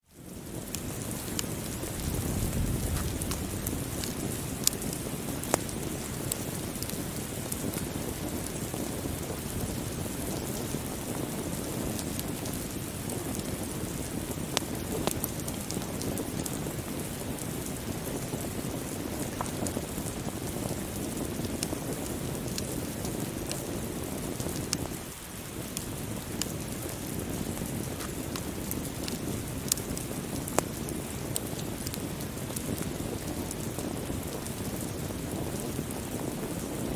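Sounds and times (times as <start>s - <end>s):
crackling wood fire: 0.0s - 36.9s
steady rainfall: 0.0s - 36.9s.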